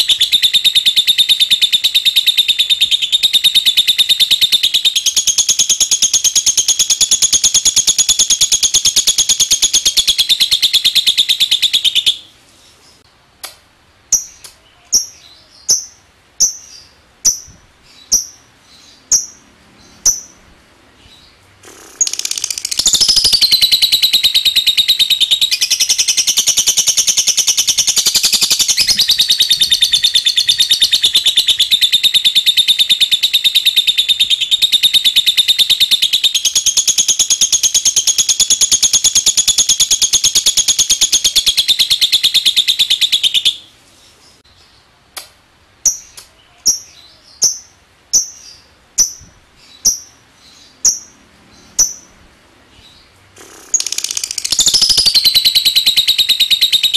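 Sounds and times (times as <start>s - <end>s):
bird sharp chirps: 0.0s - 12.3s, 14.1s - 43.7s, 45.9s - 56.9s
lovebird fast trill: 0.0s - 12.3s, 21.6s - 43.6s, 53.4s - 56.9s.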